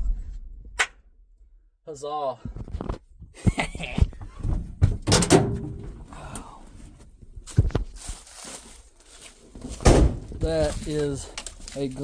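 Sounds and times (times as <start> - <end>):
truck door thunks and knocks: 9.8 - 10.4.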